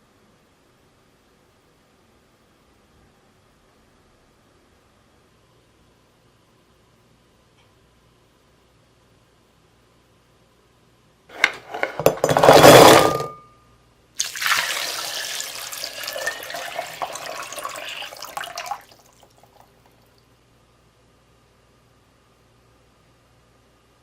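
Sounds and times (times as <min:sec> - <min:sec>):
water pouring and splashing: 0:14.2 - 0:20.0.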